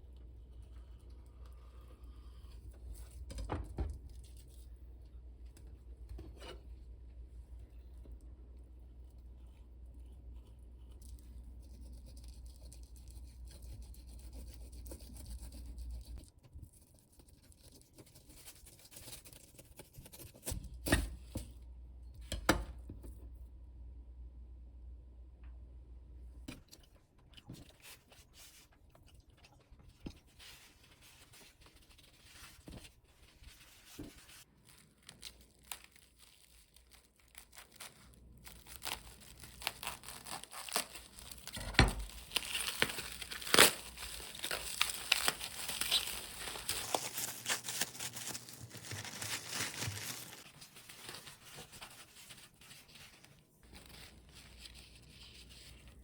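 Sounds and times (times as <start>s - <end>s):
crinkling and tearing: 30.6s - 56.0s.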